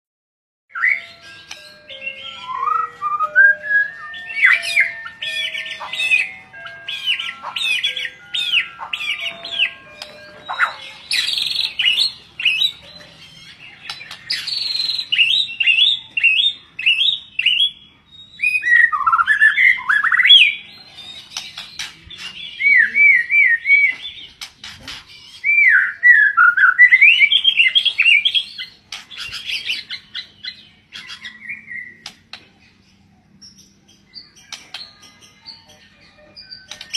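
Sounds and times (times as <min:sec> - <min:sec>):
light melody: 0:00.7 - 0:16.4
bird singing whistled phrases: 0:02.1 - 0:05.9, 0:14.3 - 0:20.6, 0:25.4 - 0:28.6.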